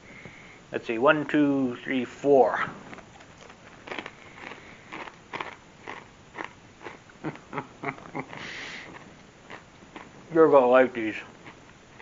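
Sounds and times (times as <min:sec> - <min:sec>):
crunchy snack chewing: 0:02.6 - 0:12.0.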